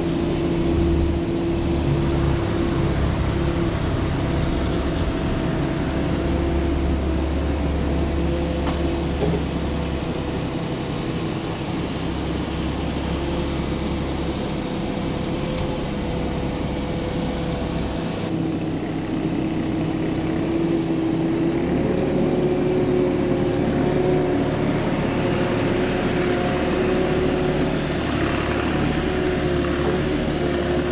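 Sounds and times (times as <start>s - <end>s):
heavy equipment engine running: 0.0s - 30.9s.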